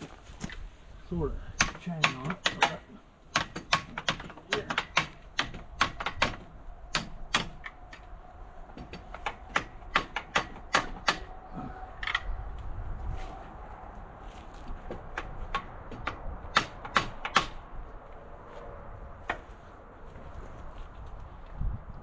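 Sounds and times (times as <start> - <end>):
hammer tapping on steel: 1.6 - 8.0, 8.8 - 11.3.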